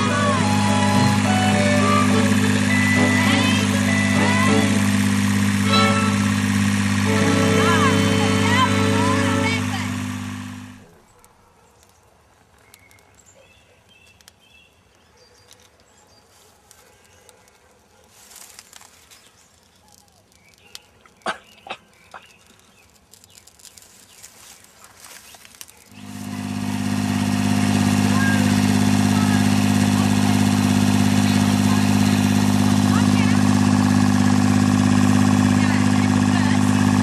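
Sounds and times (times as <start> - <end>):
tractor engine running: 0.0 - 11.0, 25.9 - 37.0.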